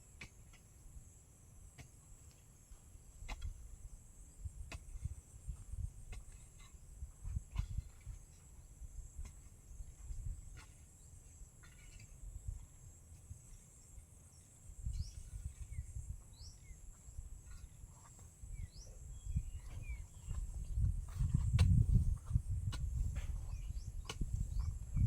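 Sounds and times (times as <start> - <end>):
crickets buzzing: 8.1 - 25.0
bird chirps: 14.3 - 16.9, 17.5 - 20.9.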